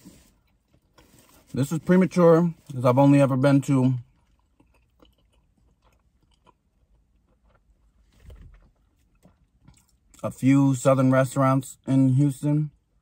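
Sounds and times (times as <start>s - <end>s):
faint chewing: 3.6s - 10.2s.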